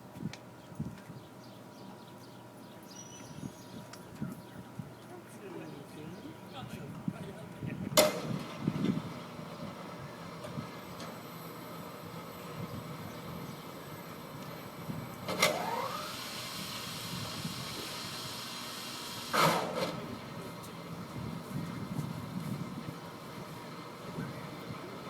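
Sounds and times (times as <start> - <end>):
boat hoist machinery whine: 7.9 - 25.0
machinery clunk: 15.2 - 16.2, 19.3 - 20.2.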